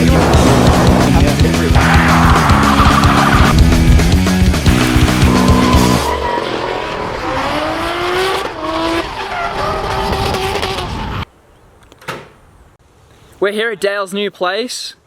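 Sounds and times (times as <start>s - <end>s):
car noise: 0.0s - 11.3s
tyres squealing: 1.8s - 3.6s, 4.7s - 11.2s.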